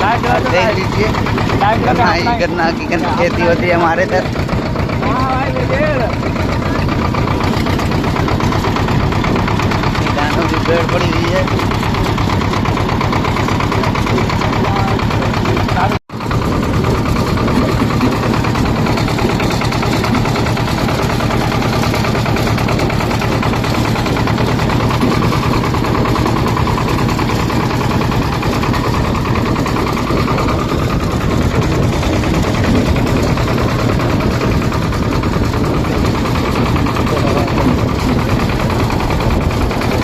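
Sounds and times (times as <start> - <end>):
tractor diesel engine knocking: 0.0 - 40.0.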